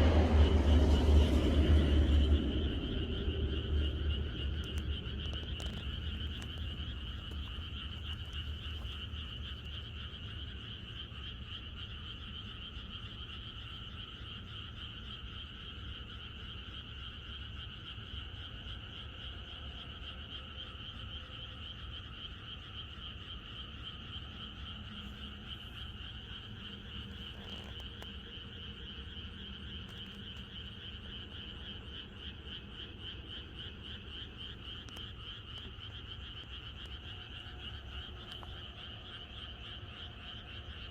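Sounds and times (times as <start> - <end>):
low rumble: 0.0 - 9.9
chorus of frogs croaking: 0.0 - 40.9.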